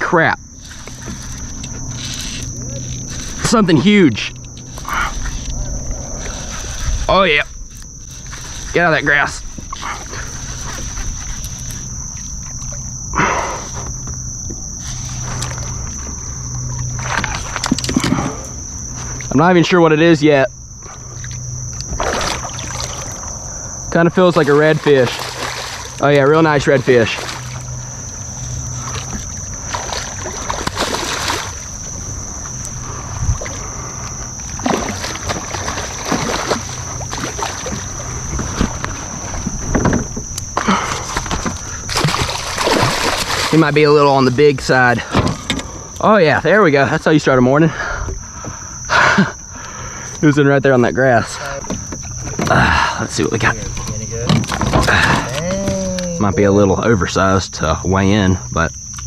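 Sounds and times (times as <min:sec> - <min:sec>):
low wind rumble: 0:00.0 - 0:55.4
high insect drone: 0:00.0 - 0:59.0
water splashing around kayak: 0:00.6 - 0:19.3, 0:20.7 - 0:46.0, 0:51.2 - 0:55.8
wind on microphone: 0:04.6 - 0:08.8, 0:32.2 - 0:35.0
fish splashing in water: 0:21.0 - 0:23.6, 0:24.3 - 0:32.6, 0:33.3 - 0:39.6, 0:40.7 - 0:43.8.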